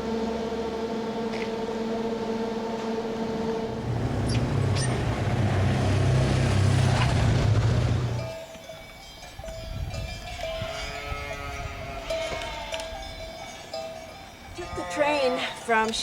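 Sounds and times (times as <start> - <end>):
vehicle engine whine: 0.0 - 8.5
vehicle low rumble: 0.0 - 8.6.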